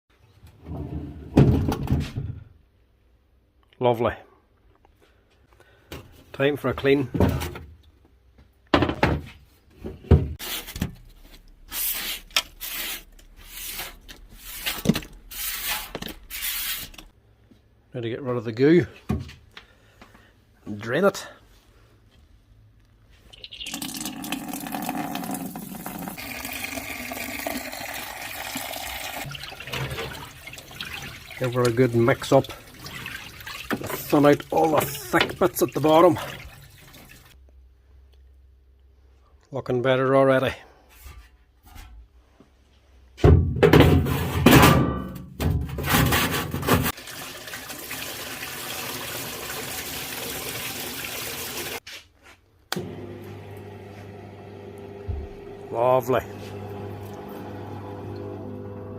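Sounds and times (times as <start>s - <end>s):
liquid sloshing in a tub: 23.2s - 37.4s
fluid draining in a gush: 23.3s - 37.4s, 46.9s - 51.8s
stream of running liquid: 23.3s - 37.4s, 46.9s - 51.8s.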